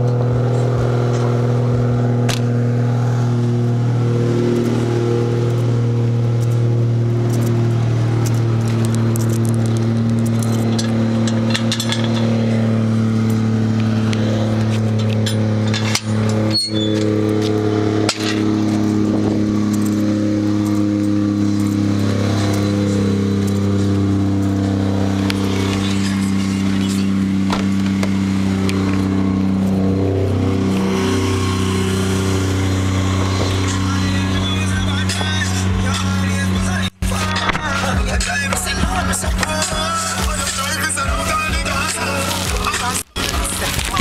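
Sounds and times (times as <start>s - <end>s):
car engine idling: 0.0s - 44.0s
light engine ticks: 5.4s - 5.8s, 6.4s - 6.6s, 7.3s - 12.3s, 19.7s - 20.0s, 20.6s - 26.0s.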